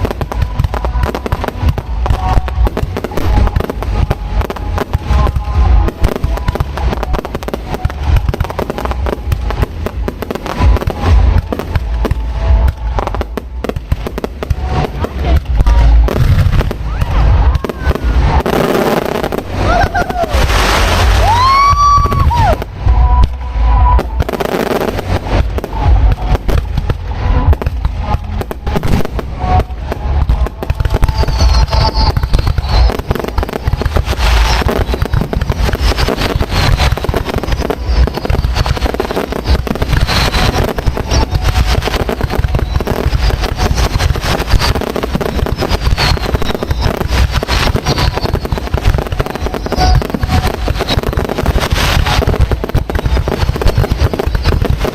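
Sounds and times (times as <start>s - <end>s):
deep rumble: 0.0s - 54.9s
fireworks bangs and booms: 0.0s - 54.9s
whistling firework shells: 28.7s - 54.9s.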